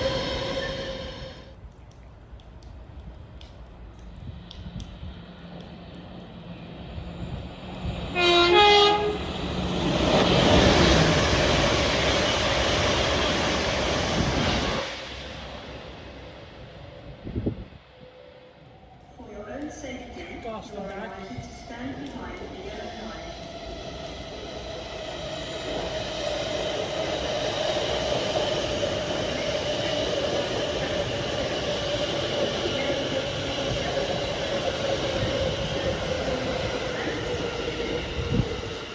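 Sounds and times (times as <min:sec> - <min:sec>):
train rushing past: 0:00.0 - 0:01.5, 0:04.0 - 0:38.9
two-tone train horn: 0:08.1 - 0:09.3.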